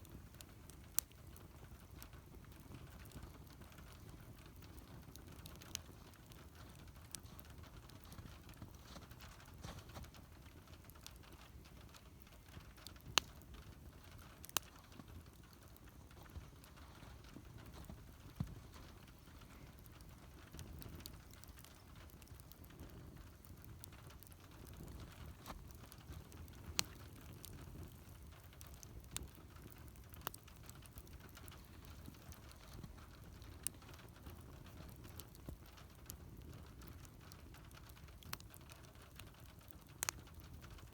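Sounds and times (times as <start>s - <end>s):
low rumble of burning fire: 0.0s - 40.9s
wood fire pops and snaps: 0.0s - 40.9s.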